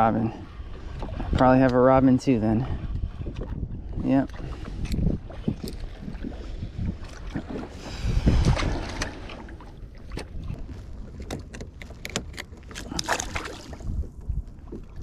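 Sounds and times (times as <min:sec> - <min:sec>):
wind buffeting microphone: 0:00.0 - 0:15.0
gear clicks and knocks: 0:04.8 - 0:05.9, 0:11.0 - 0:13.2.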